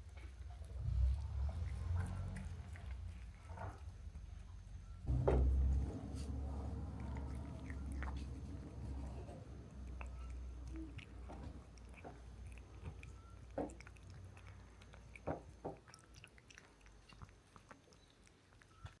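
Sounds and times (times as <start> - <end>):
low rumble: 0.5 - 14.0
person chewing: 1.6 - 19.0.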